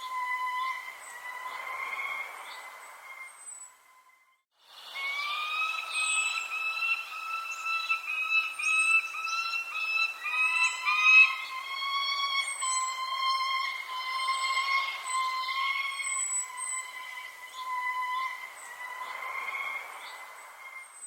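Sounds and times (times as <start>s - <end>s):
chorus of whistled bird calls: 0.0s - 21.0s
high bird chirps: 4.8s - 21.0s.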